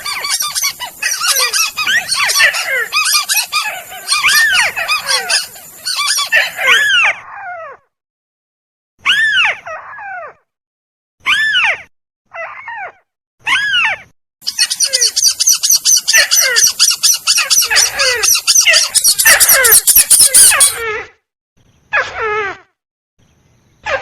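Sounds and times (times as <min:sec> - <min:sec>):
rail bird lure calls: 0:00.0 - 0:06.8, 0:14.4 - 0:20.8.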